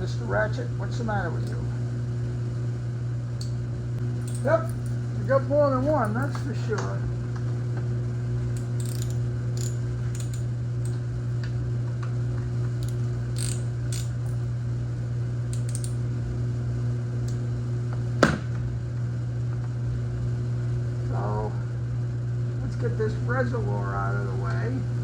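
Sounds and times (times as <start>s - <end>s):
steady low hum: 0.0s - 25.0s
ratchet wrench clicking: 4.2s - 4.9s, 8.6s - 10.5s, 12.8s - 14.4s, 15.5s - 16.0s.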